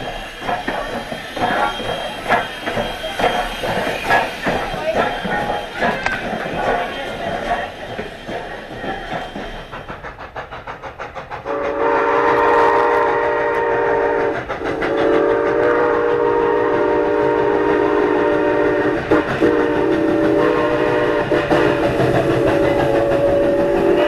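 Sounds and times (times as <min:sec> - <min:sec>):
train running rhythmic beat: 0:00.0 - 0:24.0
steam whistle chord blasts: 0:11.5 - 0:14.4, 0:15.0 - 0:21.4.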